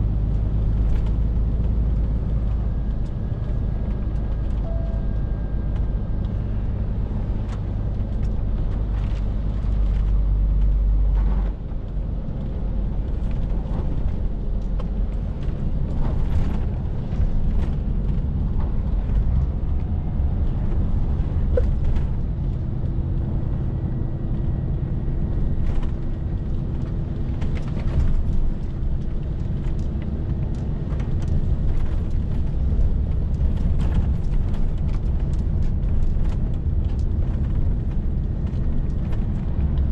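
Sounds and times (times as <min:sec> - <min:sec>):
truck diesel engine rumbling: 0:00.0 - 0:39.9
light clicks and rattles: 0:25.6 - 0:39.9.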